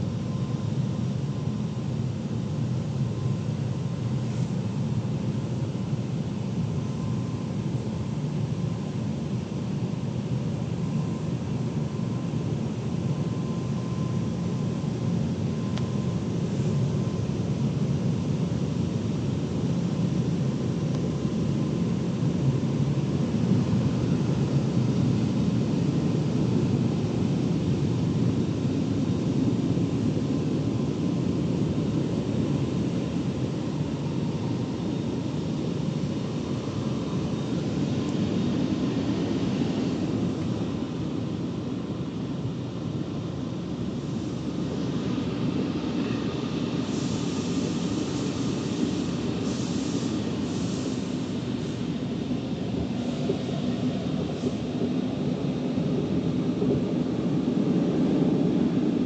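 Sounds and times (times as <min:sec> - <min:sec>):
car wash machinery rumble: 0:43.2 - 0:59.0.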